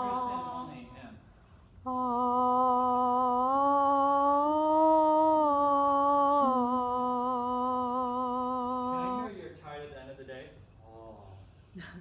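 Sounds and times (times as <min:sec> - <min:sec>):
person singing a held vowel: 0:00.0 - 0:01.0, 0:01.8 - 0:09.4.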